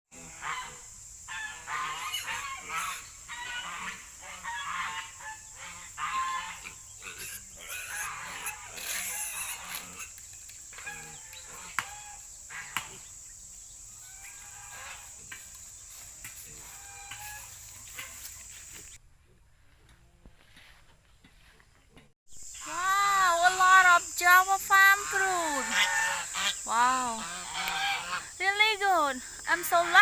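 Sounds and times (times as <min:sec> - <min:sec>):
poultry calling: 0:00.2 - 0:13.2, 0:13.8 - 0:19.0, 0:22.6 - 0:30.0.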